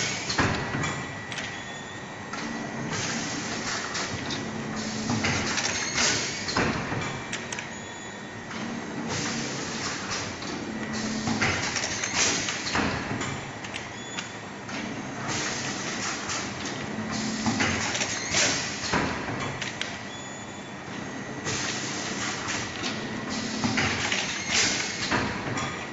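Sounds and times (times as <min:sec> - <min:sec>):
packaging machine clattering: 0:03.0 - 0:07.7, 0:08.6 - 0:13.8, 0:17.4 - 0:19.9, 0:21.5 - 0:25.9.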